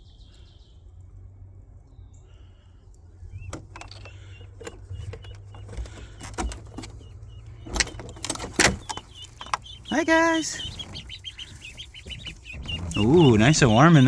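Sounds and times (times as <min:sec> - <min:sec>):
ducklings peeping: 0:02.1 - 0:14.0.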